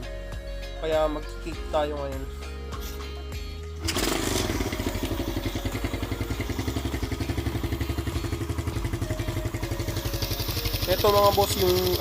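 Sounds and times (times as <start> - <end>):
motorcycle engine idling: 3.8 - 12.0.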